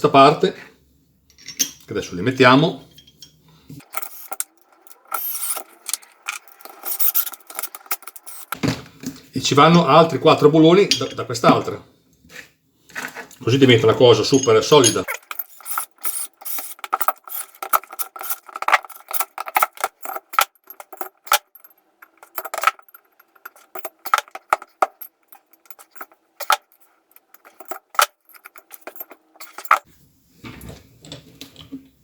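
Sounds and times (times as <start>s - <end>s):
bolts clinking on steel plates: 2.9s - 8.6s, 13.9s - 29.9s.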